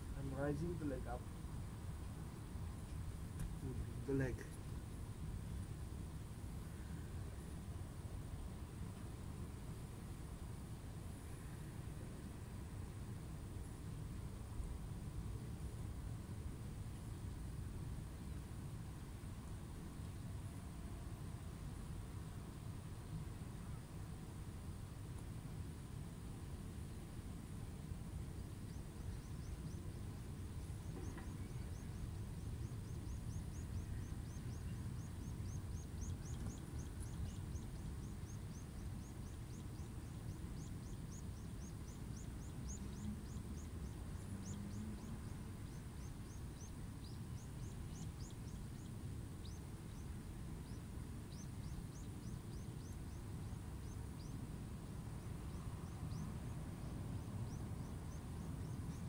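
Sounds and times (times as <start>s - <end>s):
small bird twittering: 30.8s - 50.0s.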